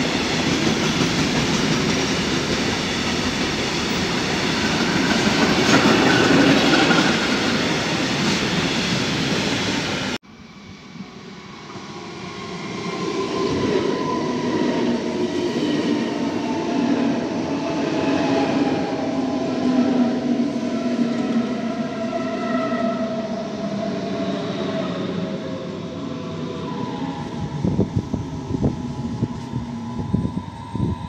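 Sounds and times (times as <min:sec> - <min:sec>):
freight train rumbling and rattling: 0:00.0 - 0:10.2, 0:23.8 - 0:31.0
electric train whine: 0:00.0 - 0:31.0.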